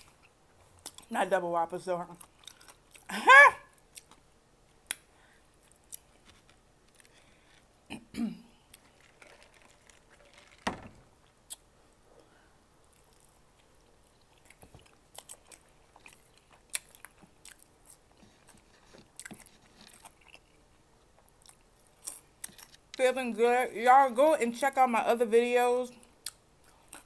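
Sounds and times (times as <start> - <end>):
person chewing a burger: 2.2 - 3.1, 3.8 - 7.9, 8.5 - 10.6, 12.8 - 22.9, 26.2 - 27.0
soft mouth clicks and smacks: 4.8 - 6.1, 11.5 - 11.7.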